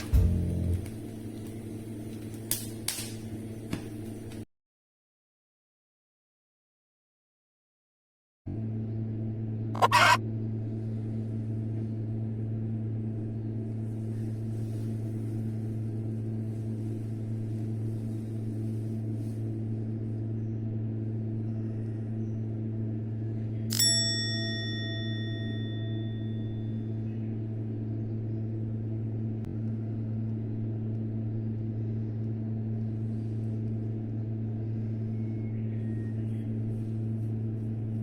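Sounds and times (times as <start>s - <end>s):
steady low hum: 0.0s - 4.4s, 8.5s - 38.0s
bright metallic ring: 23.7s - 26.8s.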